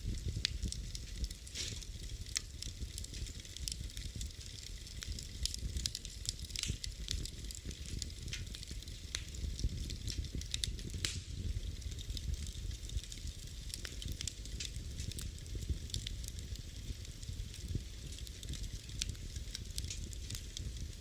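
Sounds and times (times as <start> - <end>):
fire crackling and popping: 0.0 - 21.0
low rumble of flames: 0.0 - 21.0.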